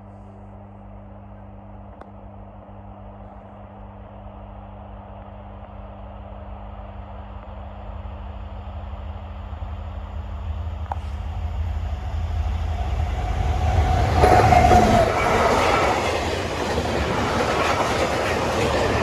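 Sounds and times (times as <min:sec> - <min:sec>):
diesel locomotive engine running: 0:05.6 - 0:19.0.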